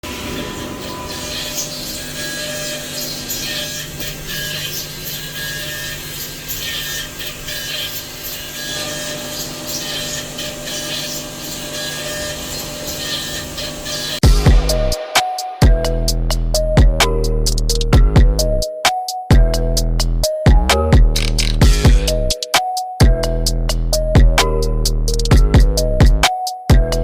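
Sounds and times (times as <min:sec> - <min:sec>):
metal cutting scraping and hissing: 0:00.0 - 0:14.2
high machine whine: 0:00.0 - 0:17.6.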